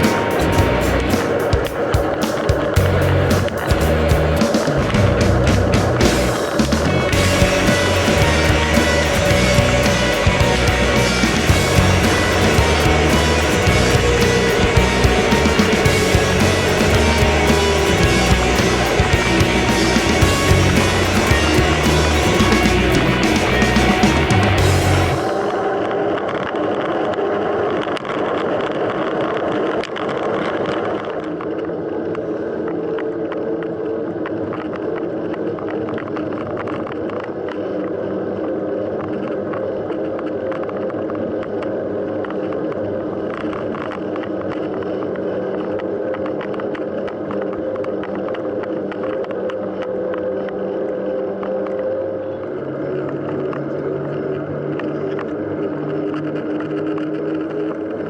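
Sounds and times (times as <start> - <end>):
held hum: 0.0 - 26.0.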